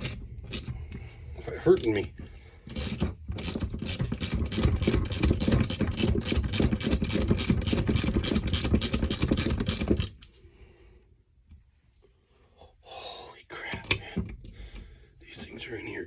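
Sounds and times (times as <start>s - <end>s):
power tool rattling hammering: 2.7s - 10.2s.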